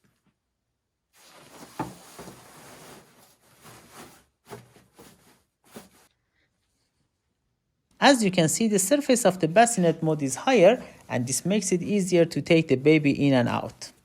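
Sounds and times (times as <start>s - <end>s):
mattress rustling and shuffling: 1.1s - 6.1s.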